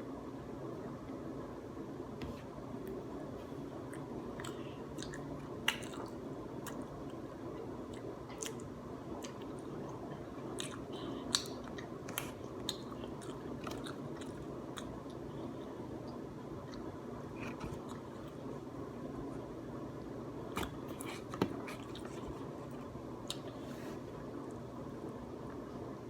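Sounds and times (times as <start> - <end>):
person chewing food: 3.8 - 7.2, 7.8 - 18.5, 20.6 - 23.6.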